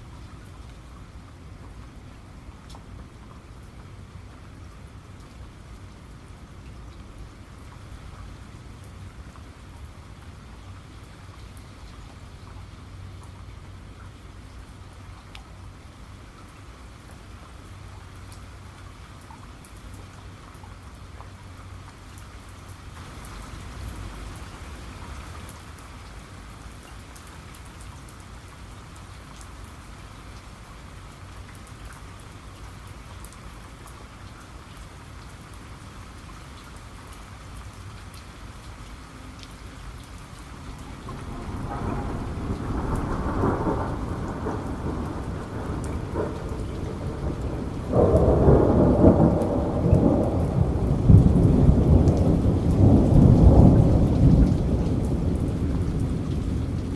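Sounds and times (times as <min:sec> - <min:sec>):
steady rain falling: 0:00.0 - 0:56.9
rumble of thunder: 0:40.5 - 0:56.9.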